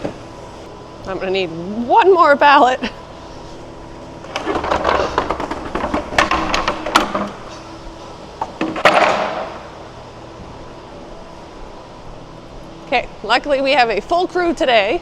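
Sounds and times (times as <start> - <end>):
wooden pallet knocking and clattering: 4.3 - 7.4, 8.6 - 9.6
pallet heavy thud: 8.6 - 9.6.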